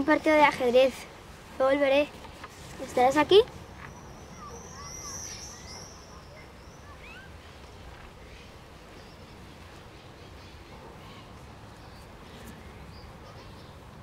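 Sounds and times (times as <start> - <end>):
birds chirping: 0.0 - 14.0
high bird trill: 3.0 - 7.5.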